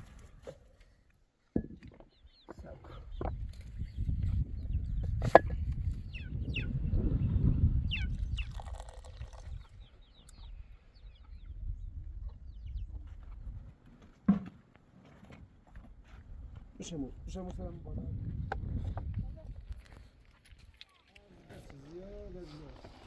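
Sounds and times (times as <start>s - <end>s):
birds chirping: 1.6s - 13.5s.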